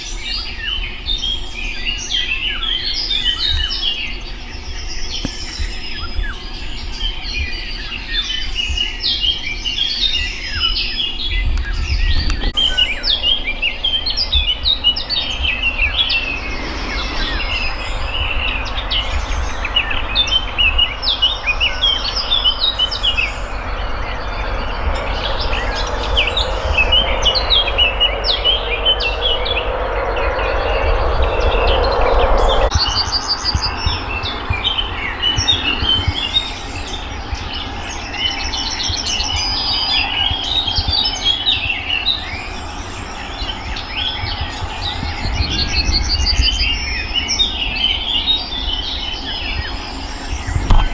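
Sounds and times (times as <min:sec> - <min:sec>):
songbirds chirping and singing: 0:00.0 - 0:50.9
low rumble: 0:10.7 - 0:50.9
rushing noise: 0:12.5 - 0:38.6.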